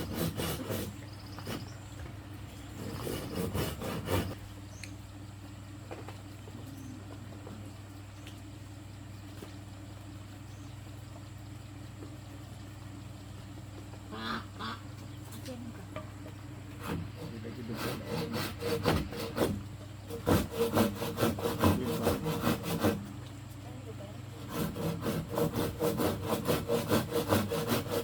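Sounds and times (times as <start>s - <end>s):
hand saw cutting bamboo: 0.0s - 1.8s, 2.8s - 4.4s, 16.8s - 23.2s, 24.3s - 28.0s
steady low hum: 0.0s - 28.0s.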